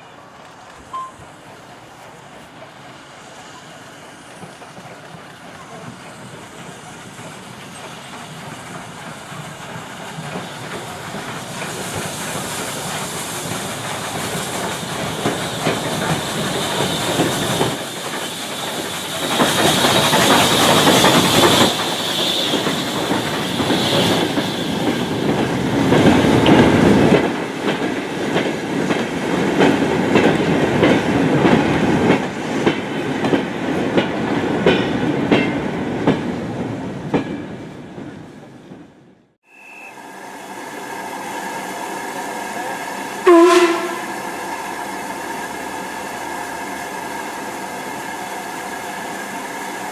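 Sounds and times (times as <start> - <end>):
train running past: 0.0 - 49.9
train wheels clickety-clack: 2.0 - 38.8.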